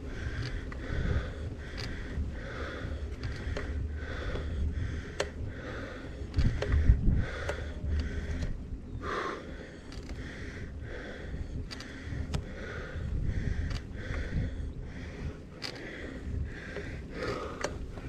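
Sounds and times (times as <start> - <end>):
cyclist breathing hard: 0.0 - 18.0
wind and tyres rumbling: 0.0 - 18.0
bike knocking: 0.2 - 8.5.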